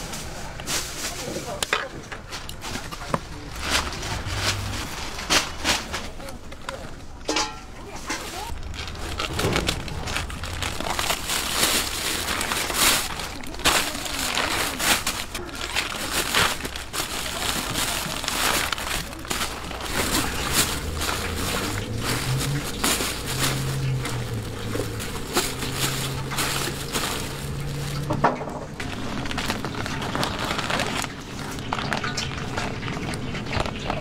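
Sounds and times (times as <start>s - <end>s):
crunching fried chicken: 8.5s - 34.0s.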